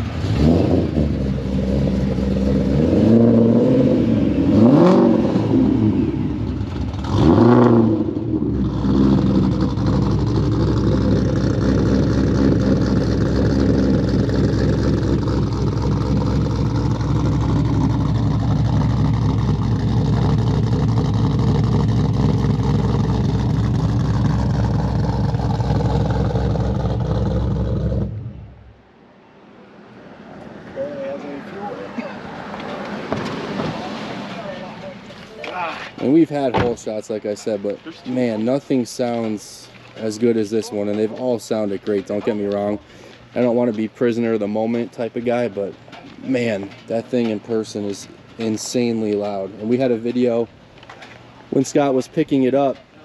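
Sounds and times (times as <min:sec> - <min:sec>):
car engine revving and idling: 0:00.0 - 0:28.9.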